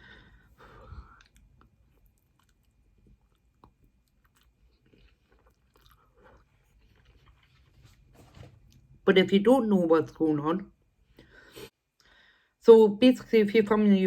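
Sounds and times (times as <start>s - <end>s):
chewing noodles: 0.9s - 8.1s.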